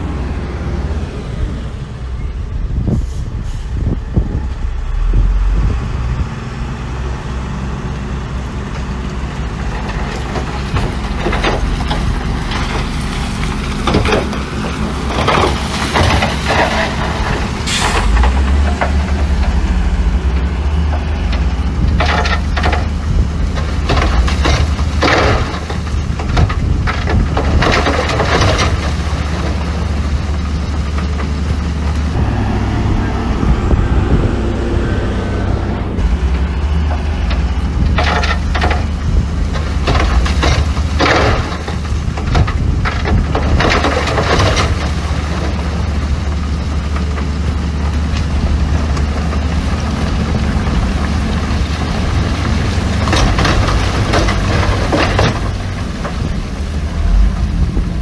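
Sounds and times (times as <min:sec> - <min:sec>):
diesel machinery engine drone: 0:00.0 - 0:58.0
stone crunching and clanking: 0:13.6 - 0:20.3, 0:20.9 - 0:29.6, 0:37.2 - 0:45.6, 0:50.1 - 0:57.8.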